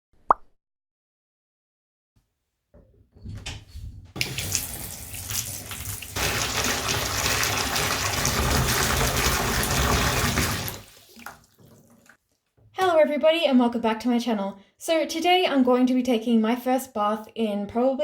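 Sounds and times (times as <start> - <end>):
tap water running into bathtub: 3.2 - 12.2.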